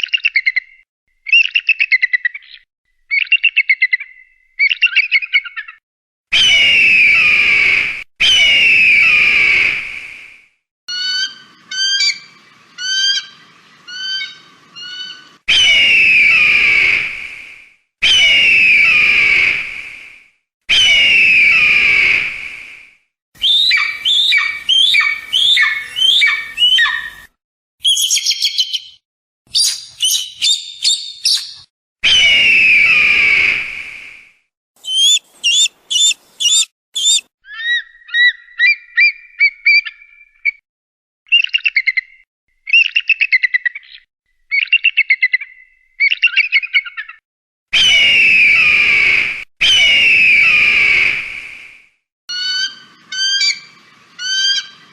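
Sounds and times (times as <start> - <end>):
eagle screaming: 18.0 - 19.6, 20.7 - 22.2, 23.4 - 27.3, 32.0 - 33.6, 34.8 - 37.8, 47.8 - 51.2
eagle chirping and chattering: 23.5 - 27.2, 27.8 - 31.6, 34.8 - 40.0.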